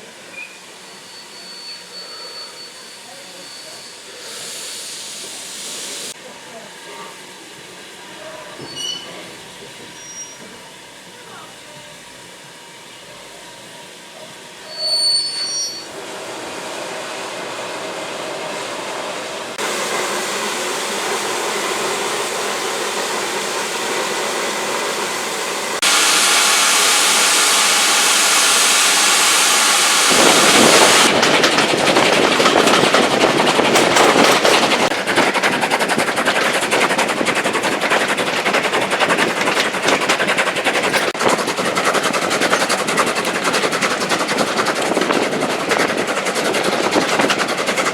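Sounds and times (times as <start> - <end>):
high-pitched whistle: 0.3 - 4.0, 14.6 - 15.9
steam hiss: 0.3 - 6.2, 19.6 - 44.1
steam locomotive exhaust beats: 15.3 - 47.9.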